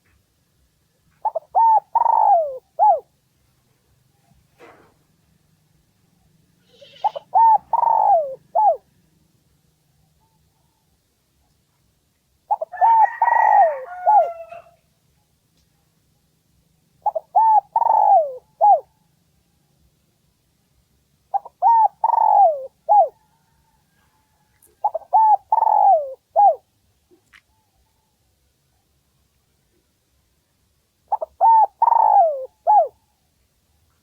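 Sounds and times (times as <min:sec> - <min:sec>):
dove cooing: 0:01.2 - 0:03.1, 0:06.8 - 0:08.9, 0:12.5 - 0:14.8, 0:17.0 - 0:18.9, 0:21.3 - 0:23.8, 0:24.8 - 0:26.7, 0:31.1 - 0:33.0
higher-pitched bird call: 0:06.7 - 0:08.8.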